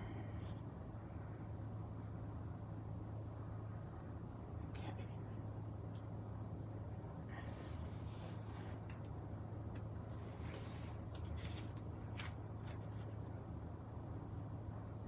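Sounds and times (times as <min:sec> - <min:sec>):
low hum: 0:00.0 - 0:15.0
paper rustling: 0:09.7 - 0:13.2.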